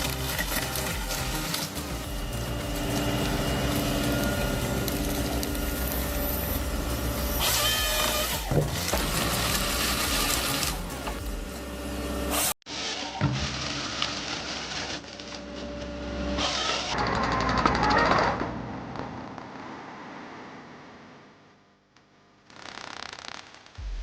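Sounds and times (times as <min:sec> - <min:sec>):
gliding whine: 0:00.0 - 0:12.6
harvester engine and hydraulics: 0:00.0 - 0:17.8.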